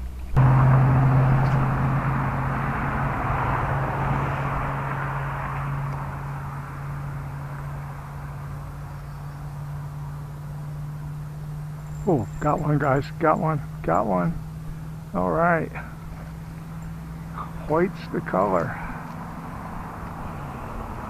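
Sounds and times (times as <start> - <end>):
rushing noise: 0.4 - 8.9.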